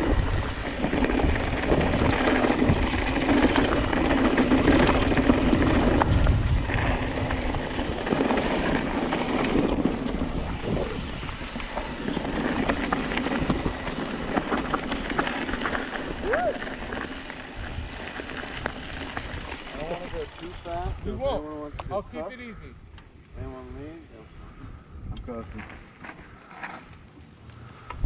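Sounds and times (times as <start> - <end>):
tyres rolling on dirt and rock: 0.0 - 21.0
bike clicks and rattles: 0.0 - 21.1
wind buffeting microphone: 0.0 - 25.6.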